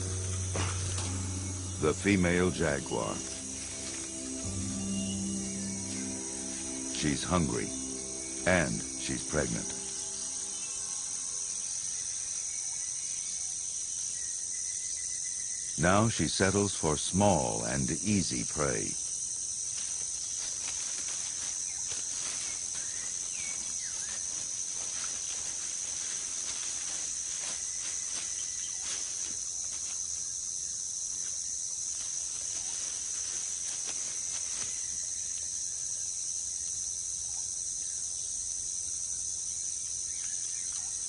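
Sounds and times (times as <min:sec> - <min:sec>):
high-pitched insect chorus: 0:00.0 - 0:41.0
faint rustles in undergrowth: 0:19.4 - 0:35.6.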